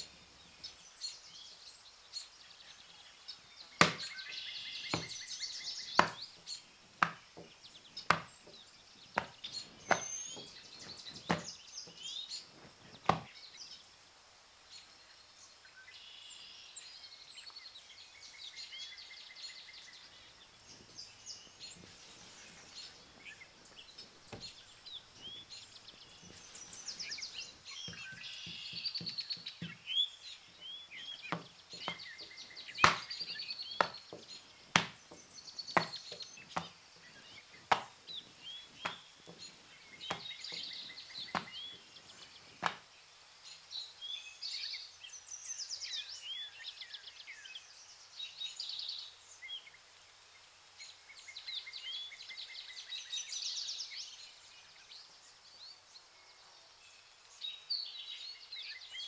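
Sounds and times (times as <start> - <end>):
small birds chirping: 0.0 - 59.0
dough slapped onto wooden table: 3.8 - 4.2, 4.9 - 5.2, 6.0 - 6.4, 7.0 - 11.6, 12.6 - 13.3, 31.3 - 41.6, 42.5 - 42.8.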